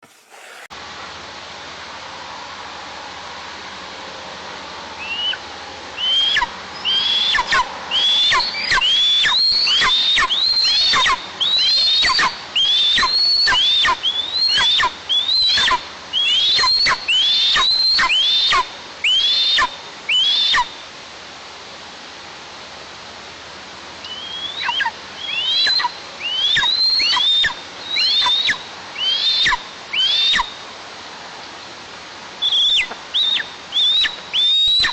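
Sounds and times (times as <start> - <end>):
eaglets begging calls: 24.1 - 30.5.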